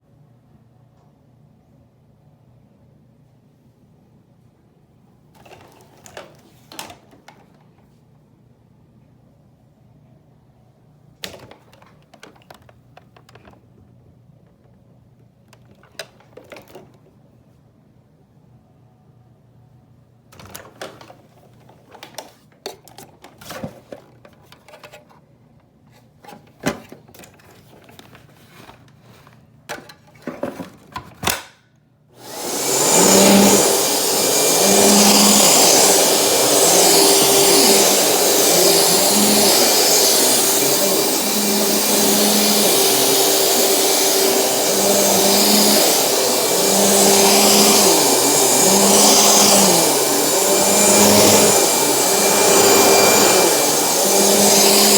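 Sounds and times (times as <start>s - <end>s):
vacuum cleaner running with whine: 32.2s - 54.9s.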